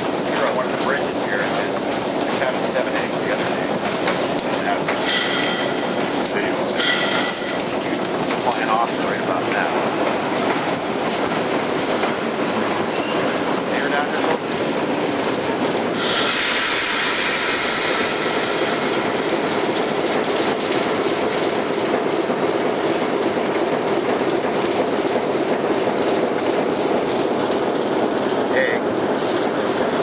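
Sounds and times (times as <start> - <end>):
locomotive engine and wheels rumbling: 0.0 - 30.0
rail joint clicks: 1.5 - 28.0
high-pitched wheel and rail hiss: 4.8 - 8.0, 16.0 - 19.6.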